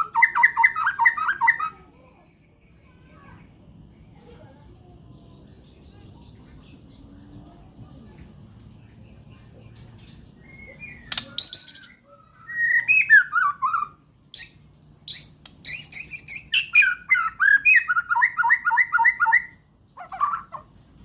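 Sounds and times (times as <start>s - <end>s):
bird singing whistled phrases: 0.0s - 1.8s, 10.4s - 19.6s.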